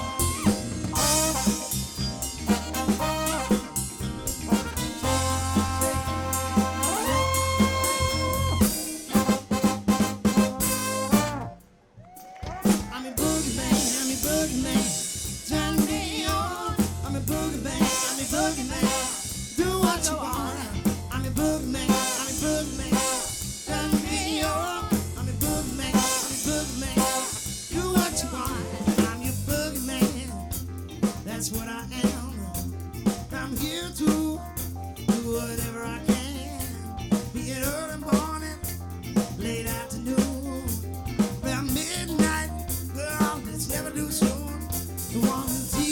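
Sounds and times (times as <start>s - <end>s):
bass line: 0.0s - 11.6s, 12.7s - 45.9s
drum kit steady beat: 0.0s - 11.6s, 12.5s - 45.9s
live soul band playing: 0.0s - 11.7s, 12.6s - 45.9s
lead vocal singing: 4.6s - 9.7s, 12.4s - 30.4s, 39.3s - 45.9s.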